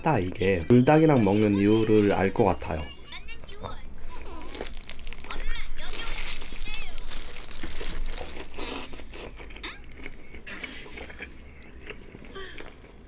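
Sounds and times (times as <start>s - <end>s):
person chewing crunchy food: 3.8s - 13.0s.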